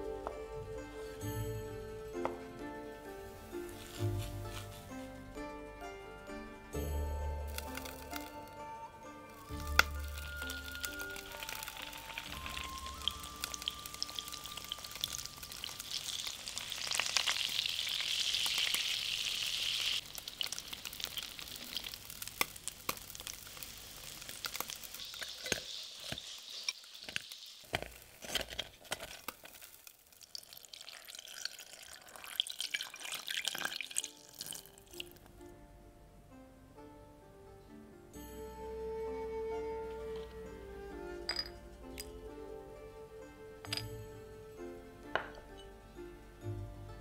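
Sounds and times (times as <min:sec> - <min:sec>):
tofu sizzling in oil: 0:09.3 - 0:35.0.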